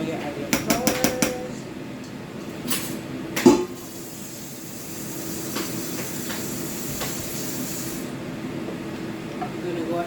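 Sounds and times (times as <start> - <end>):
utensil knocking on pot: 0.5 - 1.4
stew pot hissing: 3.7 - 8.2.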